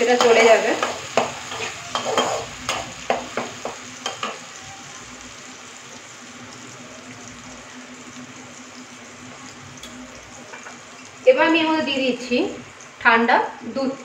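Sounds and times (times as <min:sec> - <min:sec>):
paste sizzling in oil: 0:00.0 - 0:14.0
spatula scraping pan: 0:00.1 - 0:04.4.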